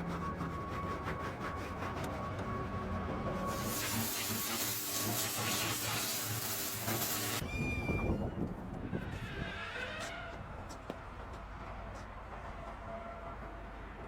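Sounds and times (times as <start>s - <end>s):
loud steady hiss: 3.5s - 7.4s.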